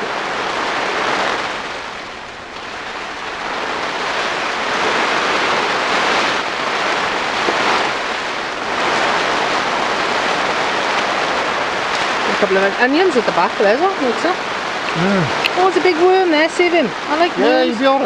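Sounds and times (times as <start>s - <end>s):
heavy rain on plastic cover: 0.0s - 18.0s.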